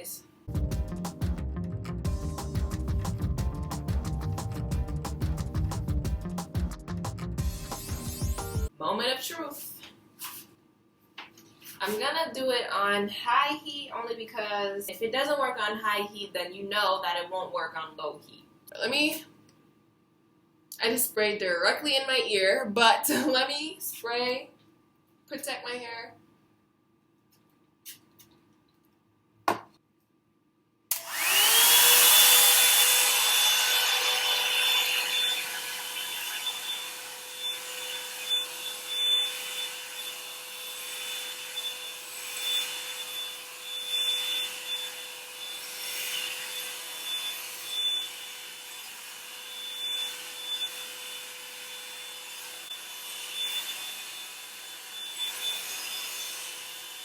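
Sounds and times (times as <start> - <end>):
blow dryer motor whining: 30.9 - 37.0.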